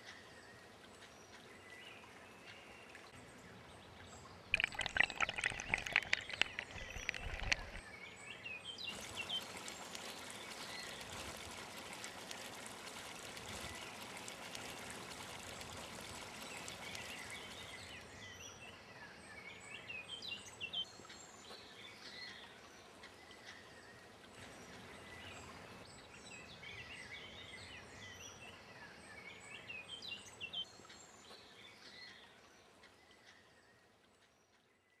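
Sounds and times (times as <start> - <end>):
water trickling and splashing: 4.2 - 18.5
small birds chirping: 4.4 - 23.8.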